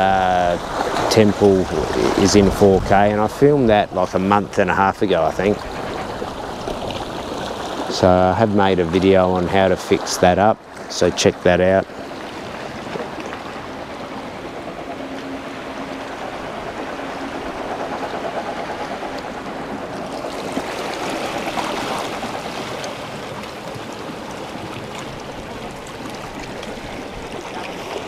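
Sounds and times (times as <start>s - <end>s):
wind on microphone: 0.0s - 8.0s
sea surf rushing: 0.0s - 28.0s.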